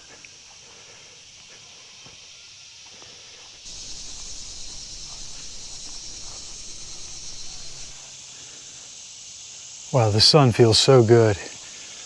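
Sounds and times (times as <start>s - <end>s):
insect chorus buzzing: 0.0s - 12.0s.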